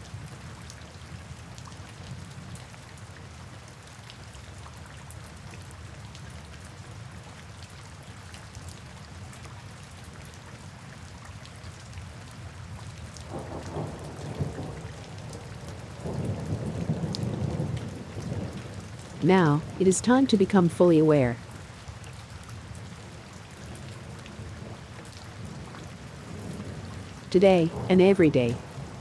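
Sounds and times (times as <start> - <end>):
steady rain: 0.0 - 29.0
thunder rumbling: 27.7 - 27.9.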